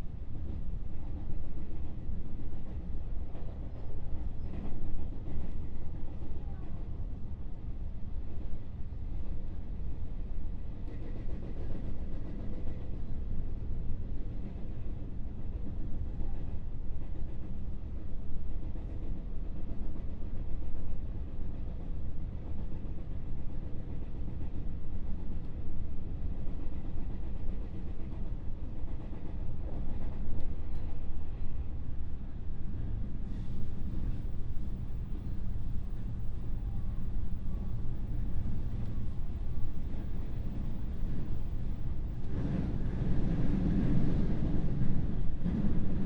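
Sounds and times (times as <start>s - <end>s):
train motor and body noise: 0.0s - 46.0s
train wheels rumbling on rail: 0.0s - 46.0s.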